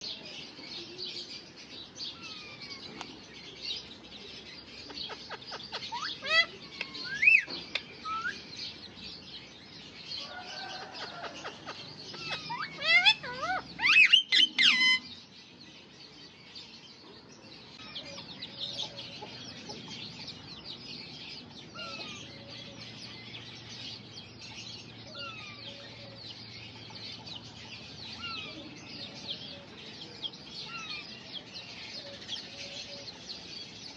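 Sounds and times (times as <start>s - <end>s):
parrots chattering: 4.8s - 8.4s, 10.3s - 15.1s
parrots squawking: 5.0s - 8.4s, 10.6s - 15.1s.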